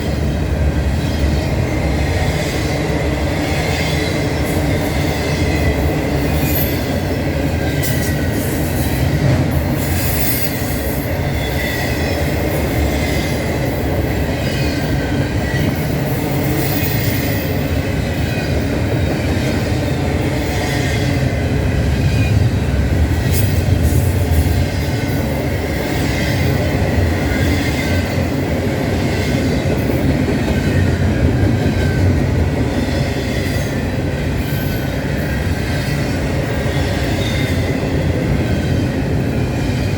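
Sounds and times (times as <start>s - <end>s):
train rumbling past: 0.0s - 39.9s.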